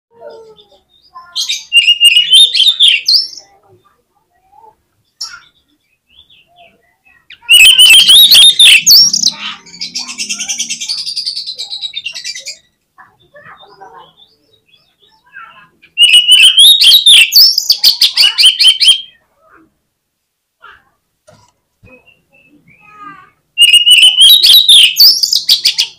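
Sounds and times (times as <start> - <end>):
bird singing: 0.2 - 4.0, 5.0 - 19.2, 21.9 - 25.9
bird chattering trill: 0.6 - 3.6, 6.2 - 19.2, 23.6 - 25.9.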